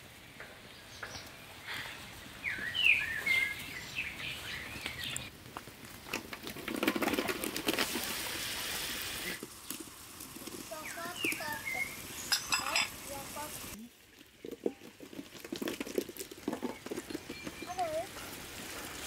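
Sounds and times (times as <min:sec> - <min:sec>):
bird chirping: 0:00.4 - 0:05.3, 0:10.7 - 0:12.8, 0:16.7 - 0:18.1
onions frying in oil: 0:07.2 - 0:19.0.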